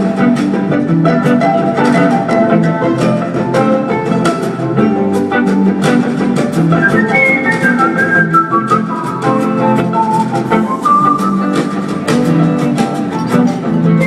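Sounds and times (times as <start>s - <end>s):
plucked string notes: 0.0s - 14.0s.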